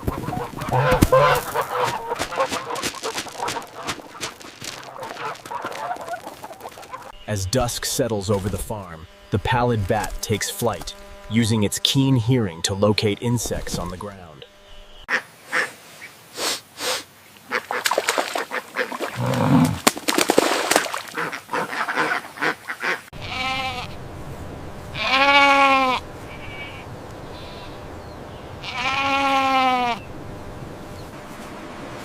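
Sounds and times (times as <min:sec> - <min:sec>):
goat bleating: 0:00.7 - 0:03.7, 0:23.2 - 0:24.0, 0:25.0 - 0:26.8, 0:28.6 - 0:30.0.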